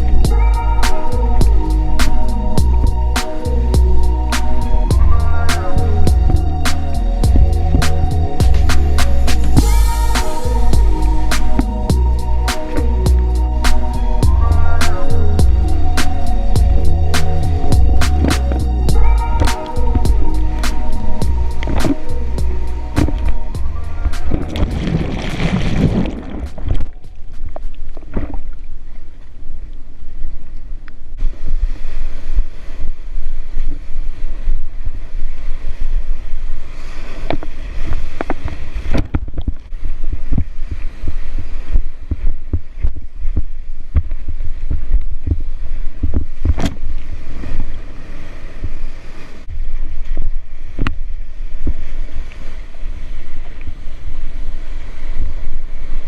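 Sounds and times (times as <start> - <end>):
surf: 0.0 - 29.8
wind buffeting microphone: 0.0 - 56.0
water splashing and knocking: 4.4 - 12.0, 16.6 - 22.1, 23.0 - 28.6, 42.0 - 47.1.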